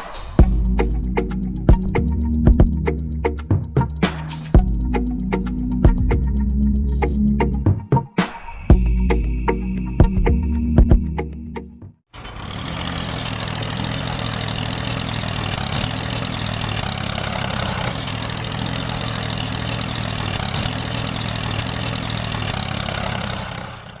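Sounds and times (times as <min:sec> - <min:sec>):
engine running steadily: 0:00.4 - 0:07.5, 0:12.2 - 0:24.0.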